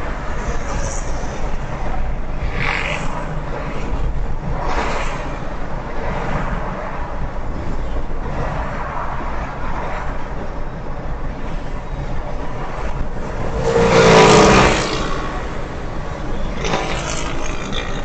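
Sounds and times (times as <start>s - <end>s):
road and tyre noise: 0.0s - 18.0s
vehicle passing: 13.0s - 18.0s.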